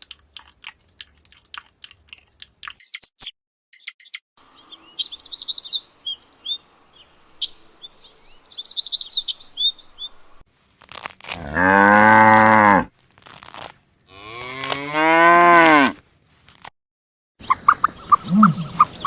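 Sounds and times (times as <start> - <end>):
small bird chirping: 2.6 - 10.4, 17.4 - 19.0.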